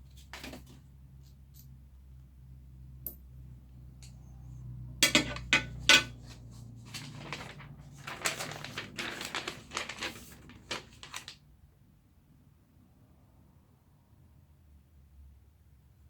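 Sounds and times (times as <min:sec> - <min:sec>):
hard parts clinking and knocking: 0:05.0 - 0:06.2.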